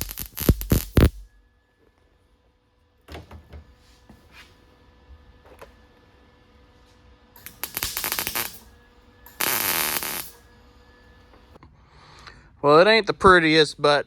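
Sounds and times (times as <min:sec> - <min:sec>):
welder crackling and hissing: 0:00.0 - 0:01.3, 0:07.4 - 0:10.4.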